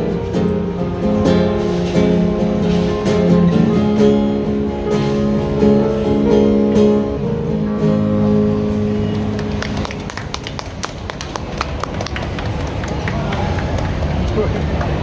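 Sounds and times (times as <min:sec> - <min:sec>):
acoustic guitar strumming chords: 0:00.0 - 0:09.9.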